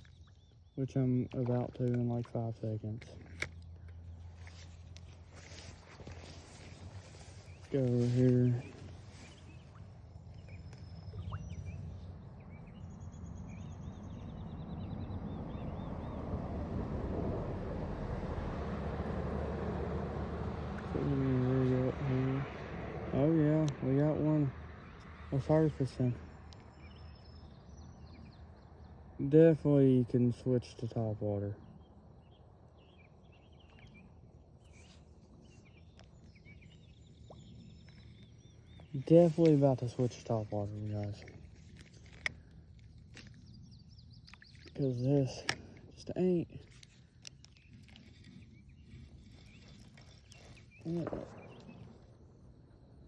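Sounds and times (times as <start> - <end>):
birds chirping: 0.0 - 16.4, 20.5 - 53.0
low steady ambient hum: 0.0 - 53.0
small bird chirps: 4.1 - 16.2
outdoor rushing noise: 14.8 - 23.9.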